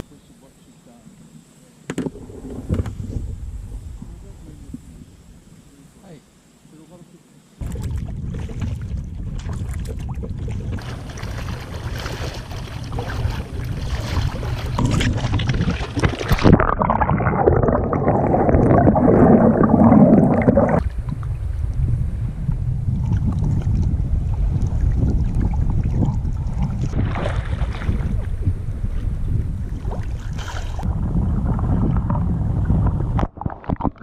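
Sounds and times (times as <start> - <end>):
wind rumble on microphone: 2.0 - 5.7, 7.6 - 34.0
water against kayak hull: 7.6 - 34.0
paddling: 9.4 - 21.2.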